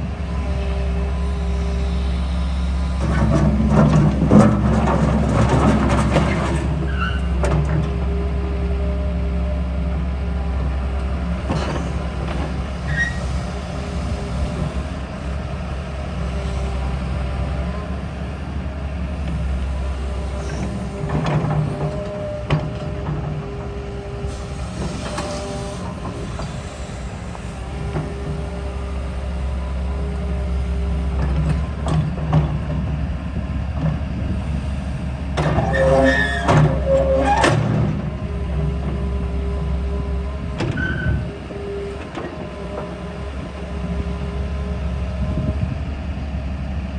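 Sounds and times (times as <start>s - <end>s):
excavator diesel engine running: 0.0s - 46.9s
short high squeal: 12.8s - 13.6s, 35.5s - 37.6s.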